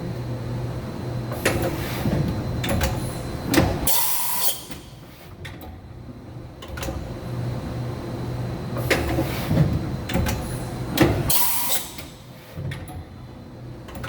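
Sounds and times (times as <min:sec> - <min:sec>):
steady machine hum: 0:00.0 - 0:01.4.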